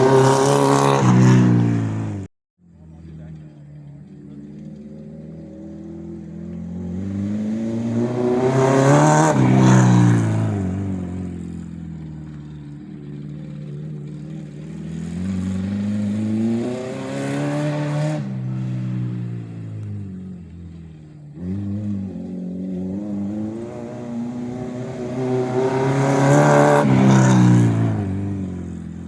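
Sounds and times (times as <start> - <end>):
car engine revving hard: 0.0 - 2.3, 5.6 - 11.3, 14.1 - 18.8, 21.4 - 29.0.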